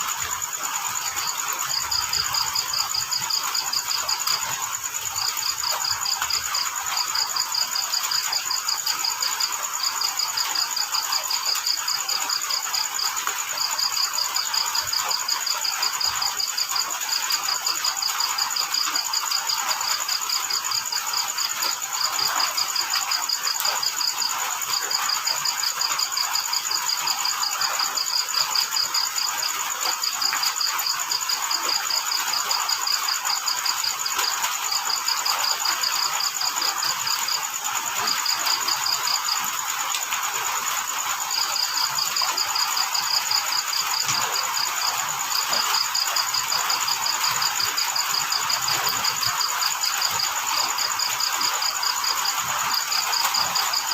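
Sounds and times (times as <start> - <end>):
cricket chirping: 0.0 - 53.9.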